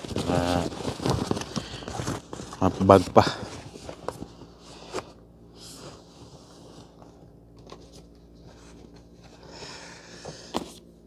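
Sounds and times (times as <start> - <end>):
bag rustling: 0.0 - 4.3.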